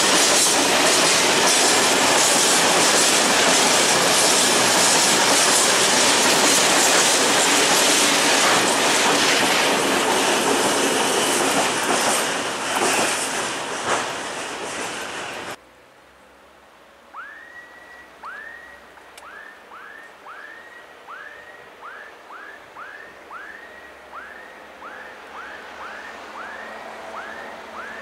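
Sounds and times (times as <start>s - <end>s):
loud passing train: 0.0s - 15.6s, 16.8s - 28.0s
bird whistled calls: 17.1s - 28.0s.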